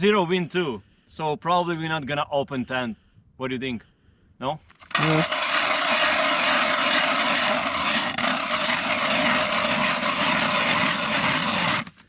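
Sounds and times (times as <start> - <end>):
ice auger motor drilling: 4.8 - 12.0.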